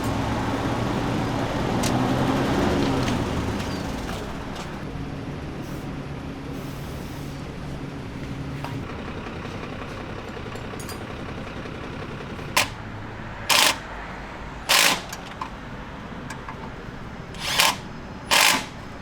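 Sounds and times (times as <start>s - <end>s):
pneumatic tool bursts: 12.5s - 12.8s, 13.5s - 13.9s, 14.6s - 15.4s, 17.4s - 19.0s.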